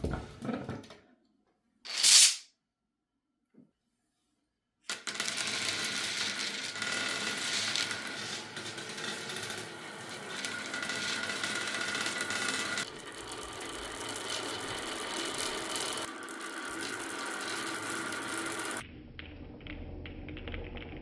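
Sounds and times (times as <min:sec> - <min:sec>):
marbles rattling on wooden run: 0:04.9 - 0:18.8.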